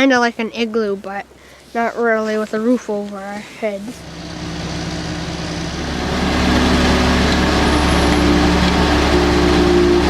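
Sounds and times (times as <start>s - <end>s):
heavy vehicle engine running: 3.6s - 10.0s
rushing noise: 4.0s - 10.0s.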